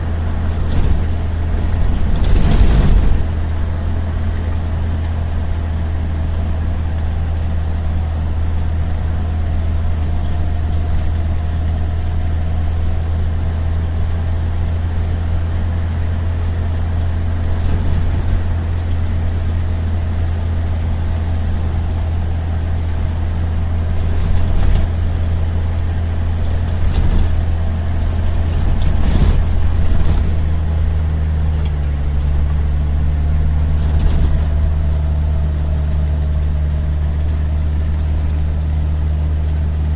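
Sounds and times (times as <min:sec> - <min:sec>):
vehicle engine running: 0:00.0 - 0:39.9
knocks and rattles: 0:00.4 - 0:03.6, 0:22.8 - 0:38.6.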